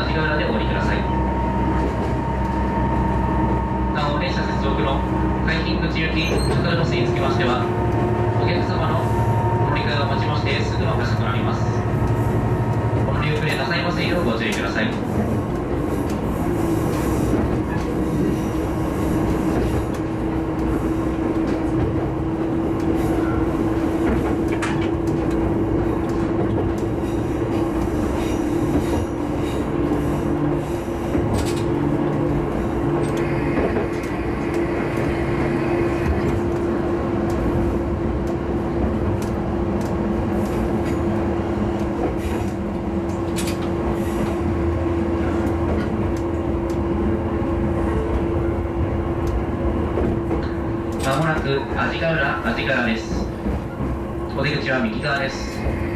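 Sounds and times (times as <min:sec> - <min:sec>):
railcar engine hum: 0:00.0 - 0:55.9
wheels rumbling on rail: 0:00.0 - 0:55.9
sharp clicks from track: 0:41.8 - 0:43.8.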